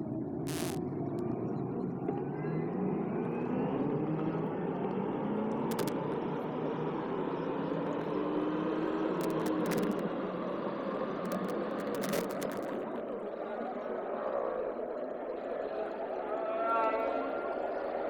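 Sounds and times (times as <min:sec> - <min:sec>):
vehicle engine hum: 0:00.1 - 0:13.0
road and wind noise: 0:00.4 - 0:12.9
sharp clicks: 0:00.5 - 0:00.8, 0:05.5 - 0:06.1, 0:09.2 - 0:10.0, 0:11.3 - 0:12.9.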